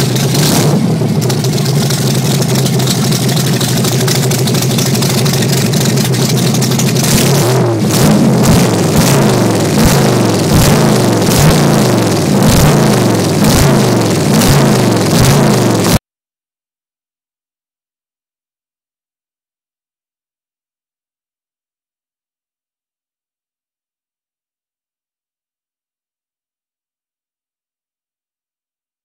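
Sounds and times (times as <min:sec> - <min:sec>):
loud car engine idling and revving: 0:00.0 - 0:16.0.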